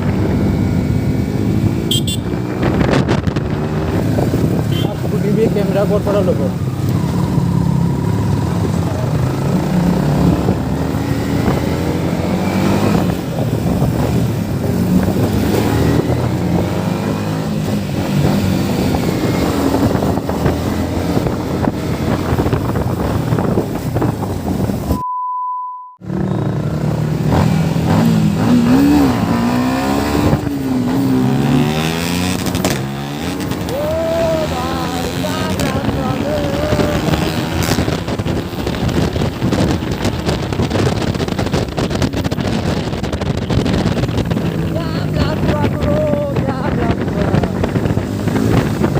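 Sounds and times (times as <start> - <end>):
motorcycle engine and exhaust: 0.0 - 25.0, 26.0 - 48.9
wind rushing past microphone: 0.0 - 25.0, 26.1 - 48.9
steady beep: 25.0 - 26.0.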